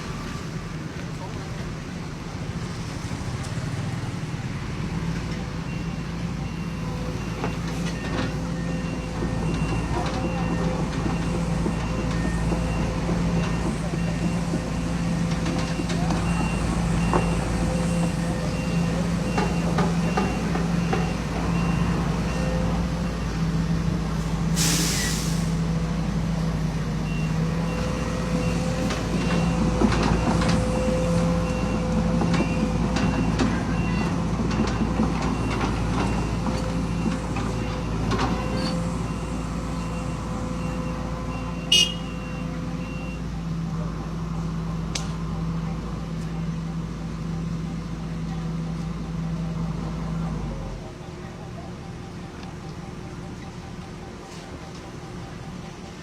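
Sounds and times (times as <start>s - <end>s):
diesel machinery running: 0.0s - 56.0s
reverse alarm beeping: 5.6s - 23.6s, 34.8s - 43.4s
loud air hiss: 24.6s - 25.6s.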